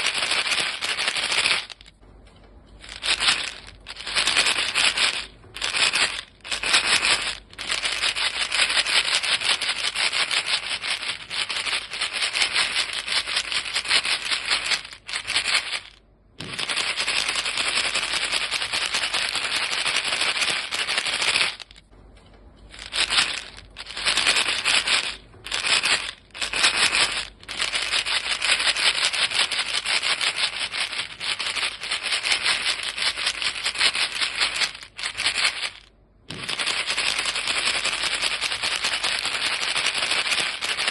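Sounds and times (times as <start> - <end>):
gum box rattling: 0.0 - 2.0, 2.8 - 21.9, 22.7 - 40.9.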